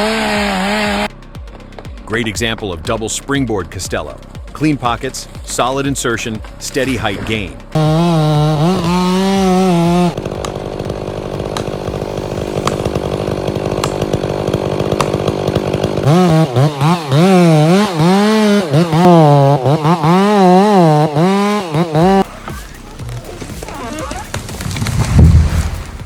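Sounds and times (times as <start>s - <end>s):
chainsaw cutting wood: 0.0s - 2.1s, 7.6s - 26.0s.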